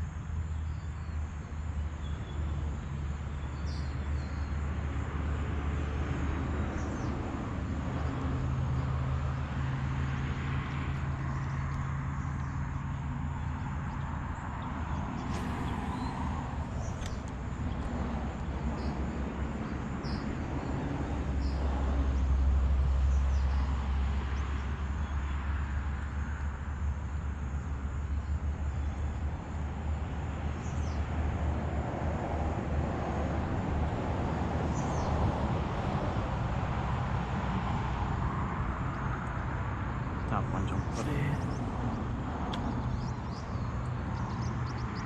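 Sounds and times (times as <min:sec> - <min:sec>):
road traffic rumbling: 0:02.7 - 0:23.4, 0:36.8 - 0:45.0
vehicle passing: 0:14.8 - 0:19.5, 0:40.2 - 0:43.2.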